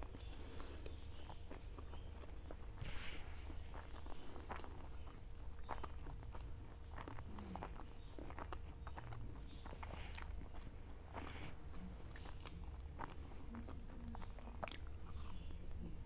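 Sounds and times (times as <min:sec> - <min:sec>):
fingers scooping food: 0:00.0 - 0:16.0
person chewing: 0:00.0 - 0:16.0
mouth clicks and smacks: 0:03.4 - 0:16.0.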